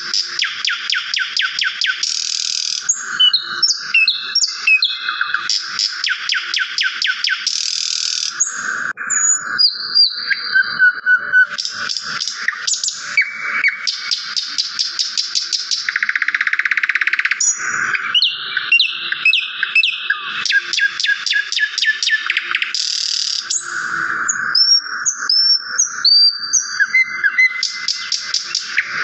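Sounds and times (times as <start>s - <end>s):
buzzy bird trill: 0.0s - 29.0s
songbirds chirping and singing: 0.0s - 29.0s.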